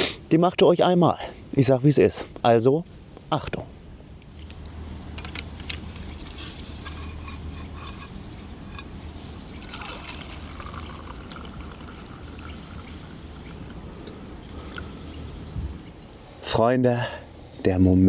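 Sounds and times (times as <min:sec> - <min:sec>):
tea pouring trickle: 0:09.4 - 0:13.8.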